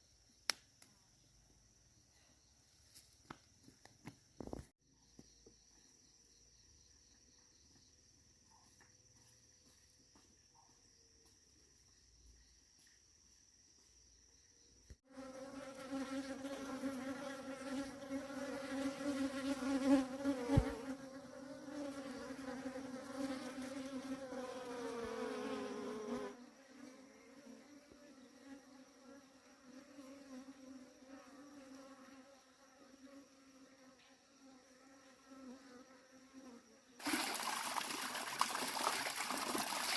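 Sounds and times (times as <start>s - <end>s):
bee buzzing close by: 15.1s - 37.9s.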